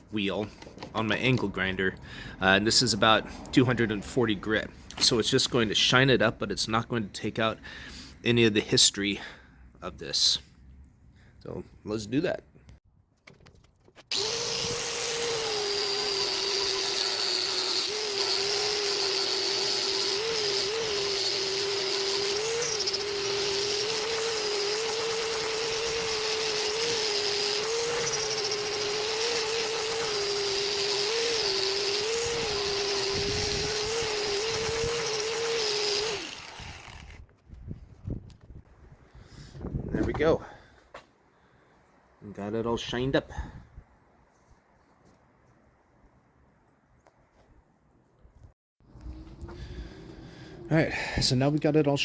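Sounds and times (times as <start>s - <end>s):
angle grinder whining: 14.1s - 37.2s, 48.9s - 51.9s.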